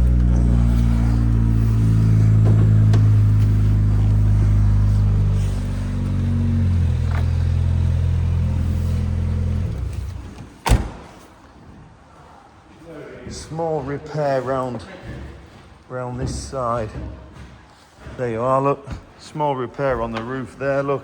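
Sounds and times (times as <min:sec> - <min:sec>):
car engine idling: 0:00.0 - 0:11.1.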